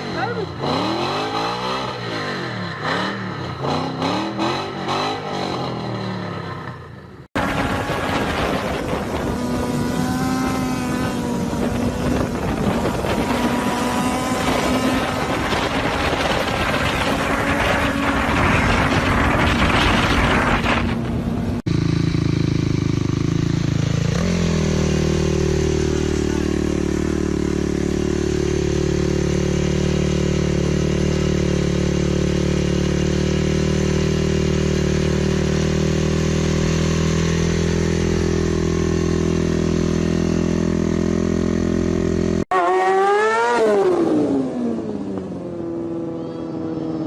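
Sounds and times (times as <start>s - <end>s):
motorcycle engine revving: 0.0s - 47.0s
wind noise while riding: 7.4s - 21.6s.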